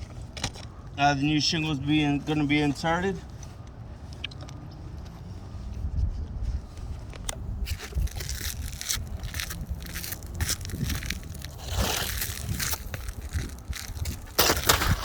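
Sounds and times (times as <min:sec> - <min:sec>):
shingle scraping against shingles: 0:07.4 - 0:15.0.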